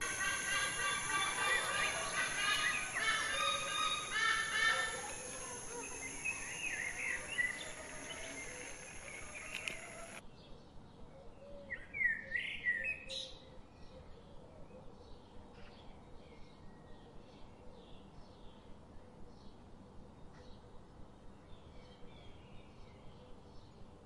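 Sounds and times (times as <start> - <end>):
bird chirps: 0.0 - 10.2
harsh bird calls: 0.0 - 10.2
steady high whine: 0.0 - 10.2.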